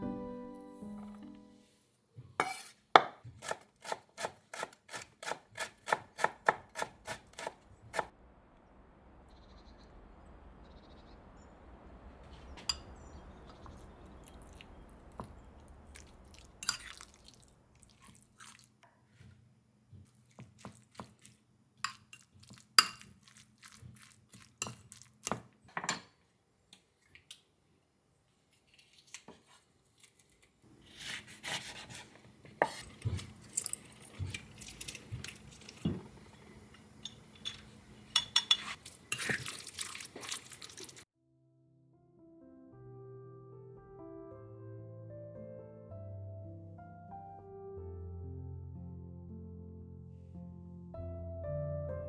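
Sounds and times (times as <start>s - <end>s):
faint low hum: 7.7s - 16.6s
utensils clinking against dishes: 32.6s - 41.0s.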